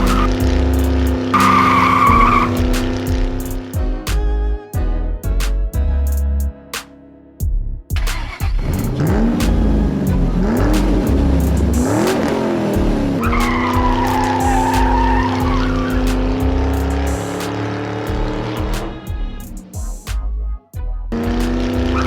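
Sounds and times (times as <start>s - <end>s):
car engine revving: 0.0s - 3.8s, 8.1s - 22.0s
music with heavy bass beat: 0.0s - 22.0s
tyre squeal: 1.4s - 2.6s, 13.2s - 17.2s.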